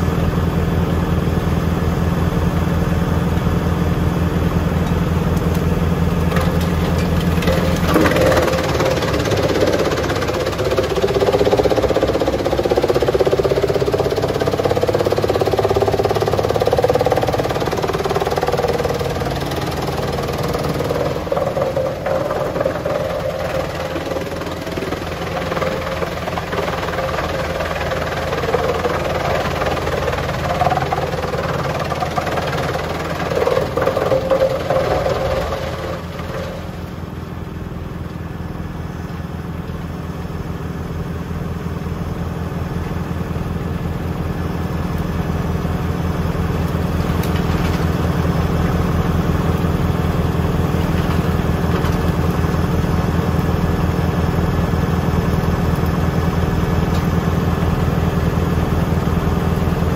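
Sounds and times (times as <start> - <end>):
tractor diesel engine running: 0.0 - 59.9
rushing machinery noise: 1.8 - 38.4.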